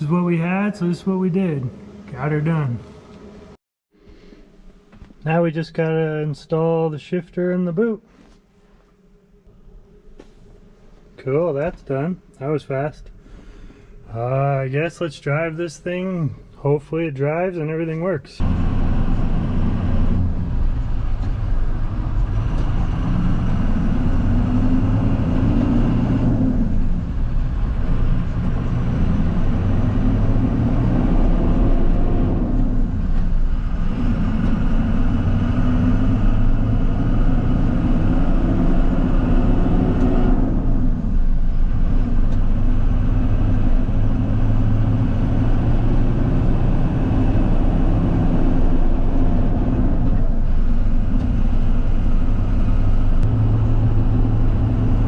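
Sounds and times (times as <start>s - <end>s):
truck engine shifting gears: 18.4s - 55.0s.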